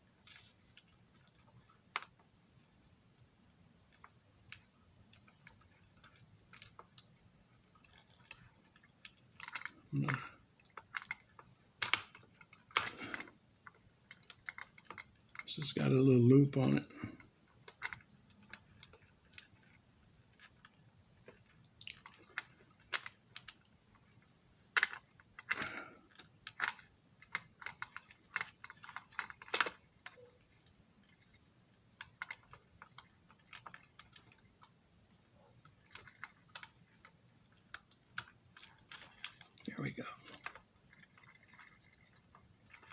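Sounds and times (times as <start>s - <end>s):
light clicks of small parts: 16.9s - 34.8s, 35.6s - 42.9s.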